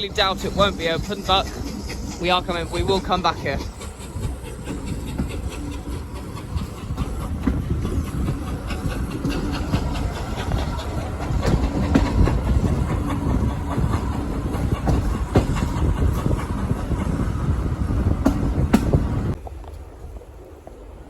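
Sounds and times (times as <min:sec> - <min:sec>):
steam train rumbling on track: 0:00.0 - 0:21.0
wheels clicking over rail joints: 0:00.0 - 0:21.0.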